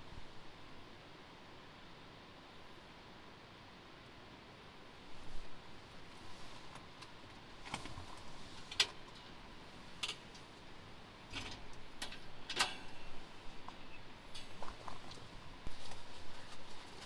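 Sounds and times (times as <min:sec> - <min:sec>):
faint steady background noise: 0:00.0 - 0:17.0.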